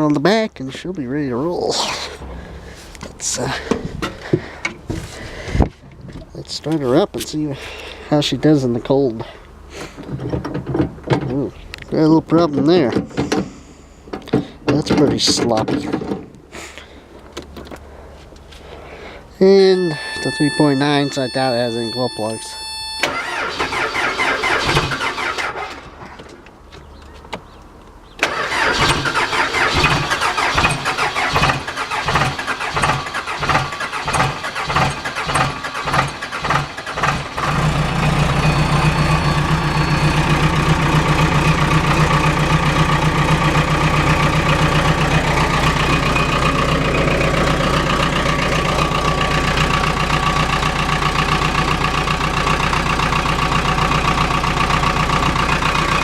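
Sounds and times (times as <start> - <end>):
diesel engine cranking: 0.8 - 17.9, 19.0 - 27.0, 28.0 - 56.0
diesel engine idling: 2.1 - 5.8, 17.9 - 25.6, 28.3 - 56.0.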